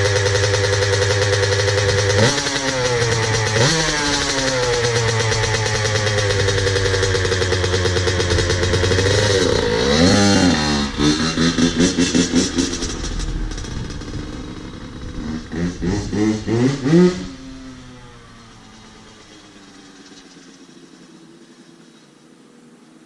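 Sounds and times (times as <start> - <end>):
dirt bike engine revving: 0.0 - 20.4.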